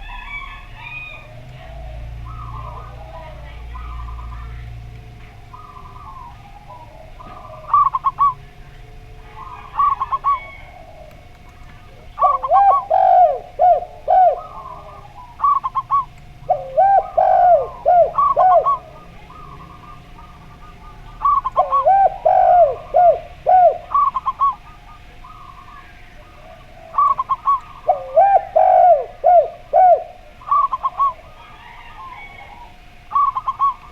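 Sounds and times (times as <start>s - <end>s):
doves cooing: 0.0s - 33.9s.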